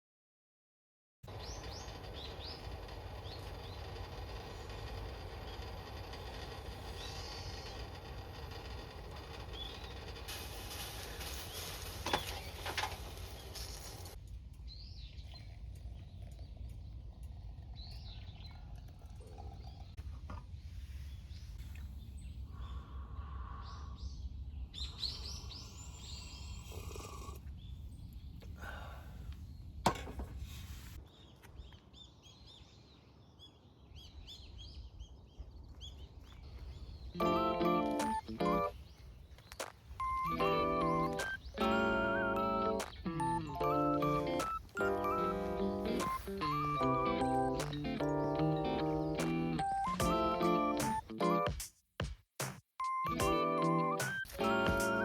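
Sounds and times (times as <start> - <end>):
small birds chirping: 1.3 - 29.8, 30.5 - 51.4, 53.0 - 55.0
low steady rumble: 12.6 - 24.9.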